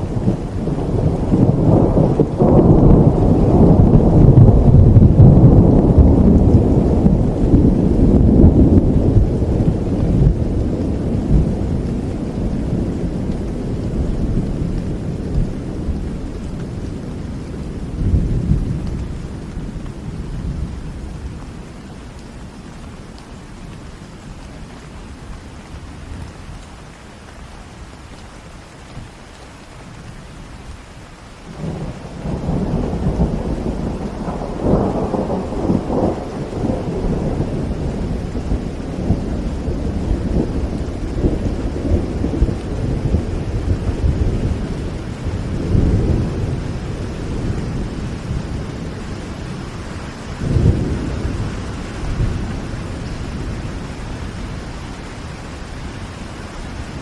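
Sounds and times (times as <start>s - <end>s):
rolling thunder with cracks: 0.0s - 20.8s, 31.5s - 54.6s
rain falling: 0.0s - 57.0s.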